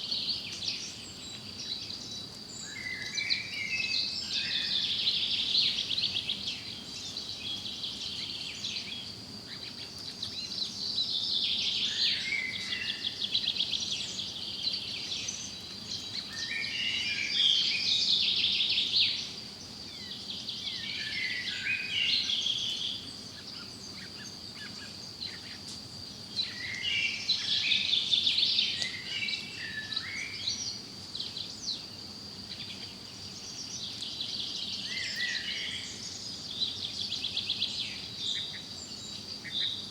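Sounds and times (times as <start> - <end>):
forest birds singing: 0.0 - 39.9.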